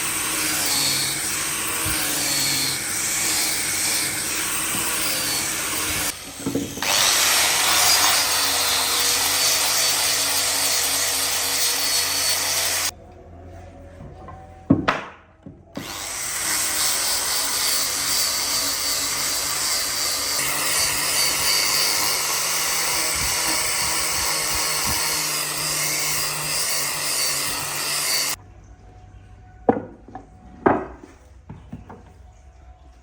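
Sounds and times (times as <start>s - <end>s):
power tool running on wood: 0.0s - 12.9s, 15.8s - 28.4s.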